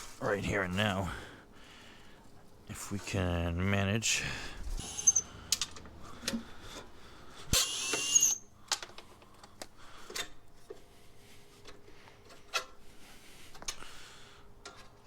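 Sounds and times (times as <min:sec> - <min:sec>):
clicks and knocks of parts: 0:05.5 - 0:06.9, 0:08.6 - 0:10.8, 0:11.6 - 0:12.8, 0:13.5 - 0:13.8, 0:14.6 - 0:15.0.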